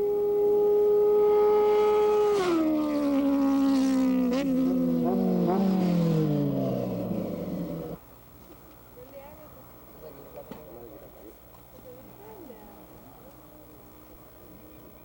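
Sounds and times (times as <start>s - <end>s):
motorcycles at full throttle: 0.0s - 8.0s.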